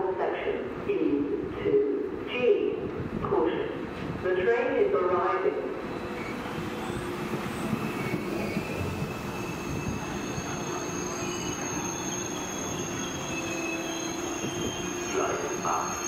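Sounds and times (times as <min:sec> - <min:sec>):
train carriages rumbling past: 0:02.2 - 0:16.0
high-pitched wheel and brake squeal: 0:05.9 - 0:16.0.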